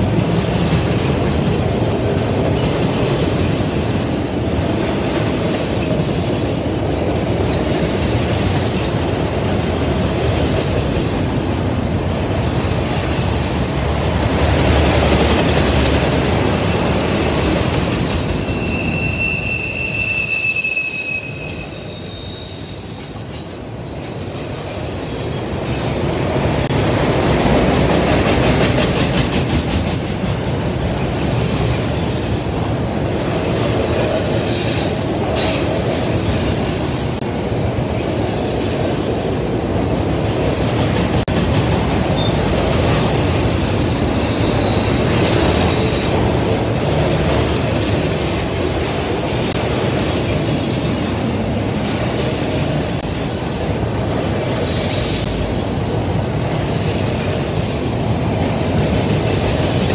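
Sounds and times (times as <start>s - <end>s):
freight train wheels rumbling: 0.0s - 59.9s
high-pitched wheel squeal: 16.9s - 23.5s, 42.1s - 46.1s.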